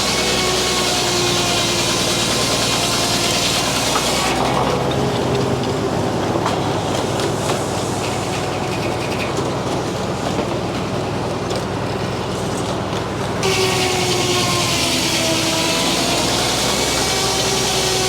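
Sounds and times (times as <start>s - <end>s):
circular saw cutting log: 0.0s - 11.6s, 12.4s - 18.0s.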